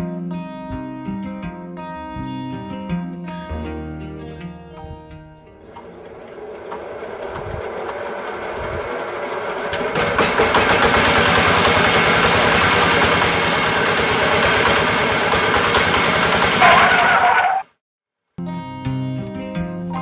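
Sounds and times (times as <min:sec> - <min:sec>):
small motor buzzing rattle: 0:05.5 - 0:16.7.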